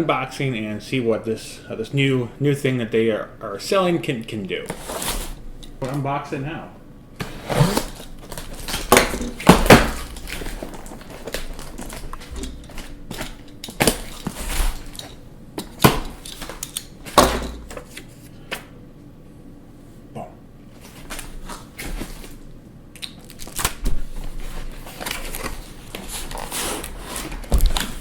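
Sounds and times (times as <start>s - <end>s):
cardboard box packaging rustling: 7.2s - 15.1s, 24.2s - 28.0s.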